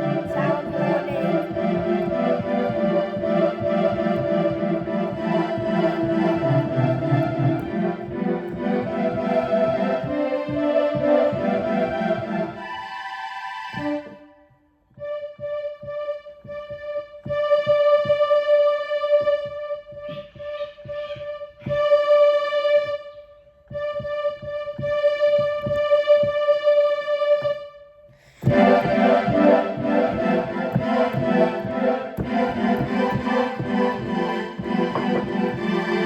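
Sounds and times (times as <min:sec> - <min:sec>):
clicking knocks: 0:00.0 - 0:11.6, 0:28.4 - 0:36.0.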